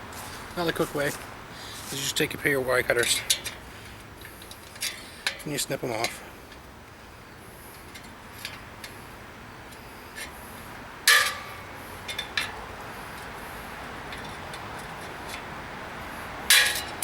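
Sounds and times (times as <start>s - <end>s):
wire cutters snapping metal: 16.5s - 17.0s.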